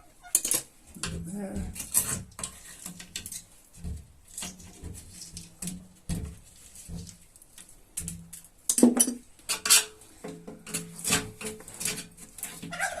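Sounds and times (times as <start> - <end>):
hard objects clinking and knocking: 8.1 - 12.0.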